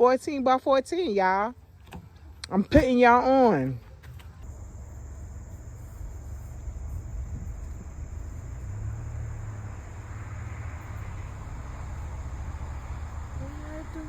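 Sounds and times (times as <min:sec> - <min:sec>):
faint hiss: 0:04.4 - 0:14.0
low rumble: 0:04.4 - 0:14.0.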